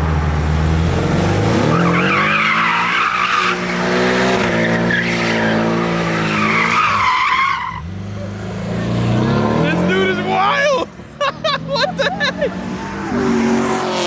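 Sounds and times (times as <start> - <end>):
car engine revving: 0.0 - 10.6, 11.6 - 14.0
tyres squealing: 1.4 - 8.0.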